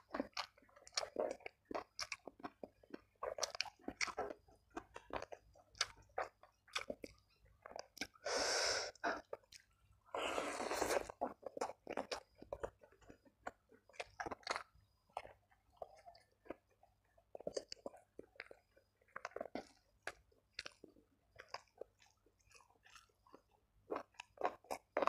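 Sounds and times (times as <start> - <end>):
man chewing food: 0.0 - 25.0
wet mouth clicks and smacks: 0.2 - 8.2
crunching bites: 10.6 - 16.6.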